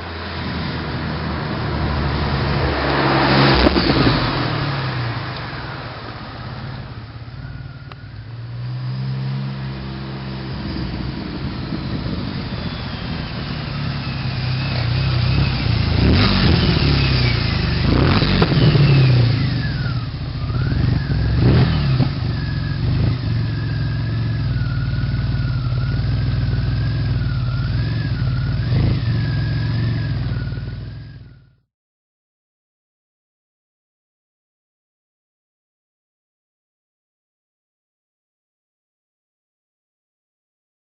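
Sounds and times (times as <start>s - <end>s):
car engine idling and revving: 0.0s - 31.6s
thin high whistle: 7.1s - 31.6s.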